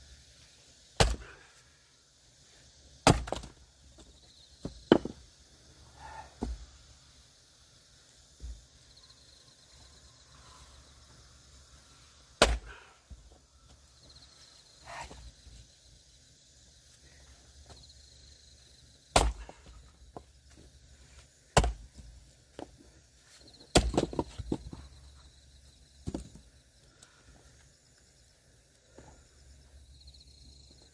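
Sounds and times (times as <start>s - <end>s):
axe chopping wood: 1.0s - 1.4s, 3.0s - 3.6s, 4.7s - 5.2s, 12.4s - 12.9s, 19.1s - 19.8s, 21.5s - 22.1s, 23.7s - 24.7s
wood pieces falling: 3.1s - 5.2s, 23.7s - 24.8s, 26.0s - 26.4s.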